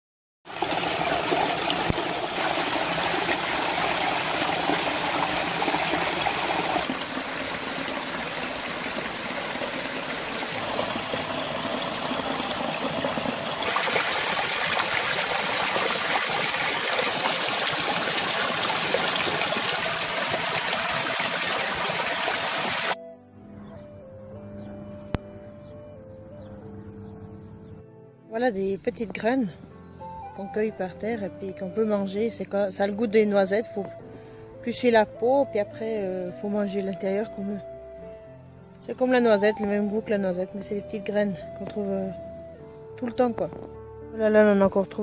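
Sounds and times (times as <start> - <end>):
stream water trickling and rushing: 0.5 - 23.0.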